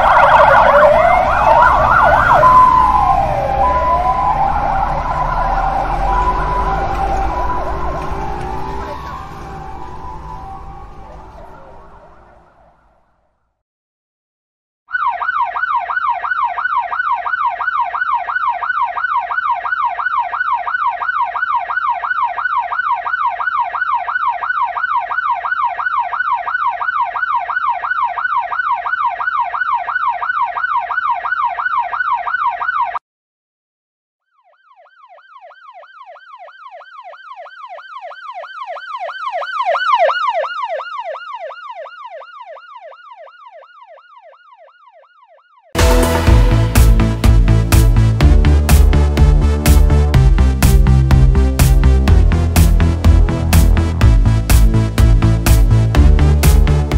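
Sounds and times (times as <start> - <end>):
ambulance siren yelping: 0.0 - 13.2, 14.9 - 33.0, 34.4 - 51.0
siren passing by: 0.0 - 13.3, 14.9 - 33.0, 34.2 - 56.9.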